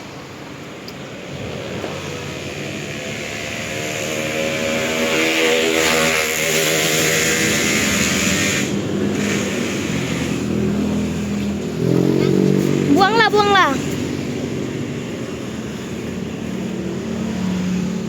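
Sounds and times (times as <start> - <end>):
motor vehicle engine running: 0.0 - 18.0.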